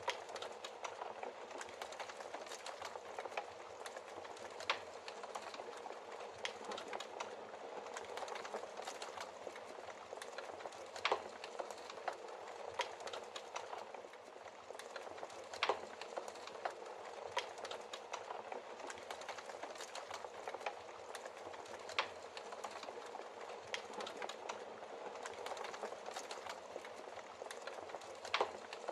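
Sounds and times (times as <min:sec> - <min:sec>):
wood logs crackling in fireplace: 0:00.0 - 0:28.9.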